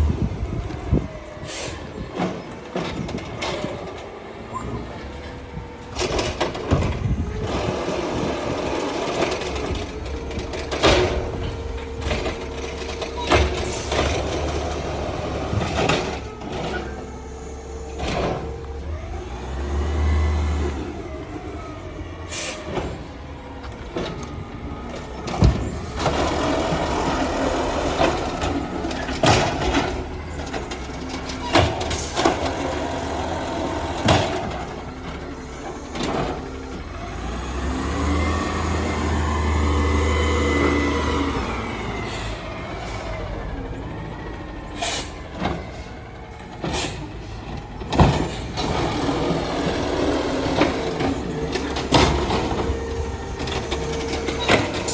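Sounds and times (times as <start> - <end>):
garbage truck engine running: 0.0 - 54.9
sharp mechanical bangs and knocks: 46.5 - 54.9.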